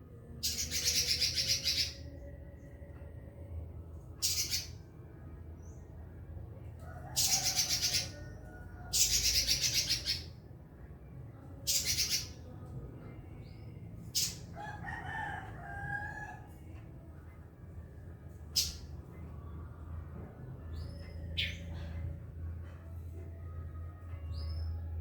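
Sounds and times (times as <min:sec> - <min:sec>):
bird singing buzzy trills: 0:00.4 - 0:02.5, 0:04.2 - 0:05.9, 0:08.9 - 0:10.5.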